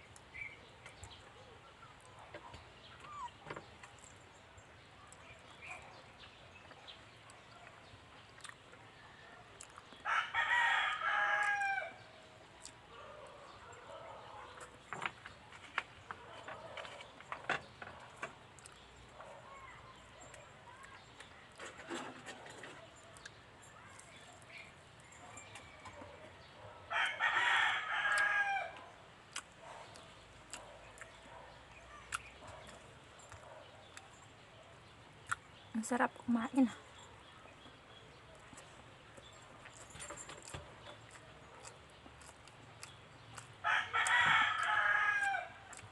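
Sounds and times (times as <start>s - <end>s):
rooster crowing: 10.0s - 12.0s, 26.9s - 28.8s, 43.6s - 45.6s.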